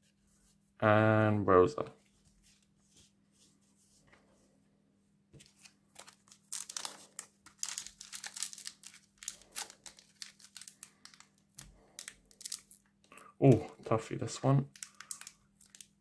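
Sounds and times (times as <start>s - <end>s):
foil wrapper crinkling and tearing: 5.4s - 12.9s, 14.6s - 16.0s.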